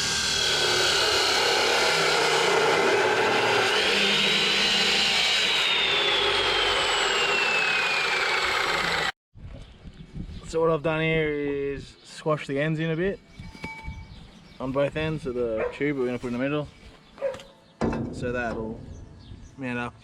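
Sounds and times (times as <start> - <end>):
power tool grinding steel: 0.0 - 9.2.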